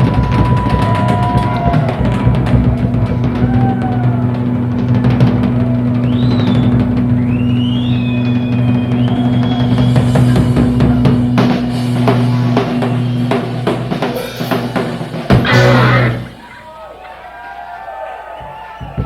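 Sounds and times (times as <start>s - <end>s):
drum fills and cymbal crashes: 0.0s - 16.4s
blues-rock band playing: 0.0s - 16.6s
electric guitar bends: 15.3s - 16.5s.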